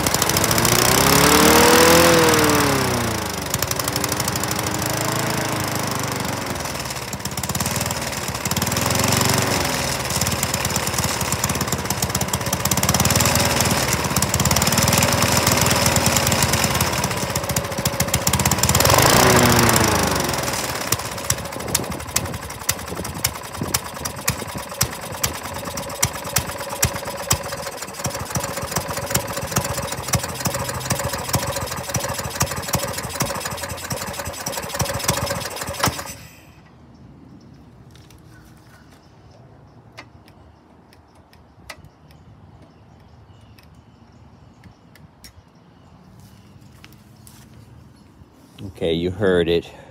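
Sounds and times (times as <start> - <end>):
sharp engine ticks: 0.0 - 36.3
lawn mower engine surging: 0.0 - 36.9.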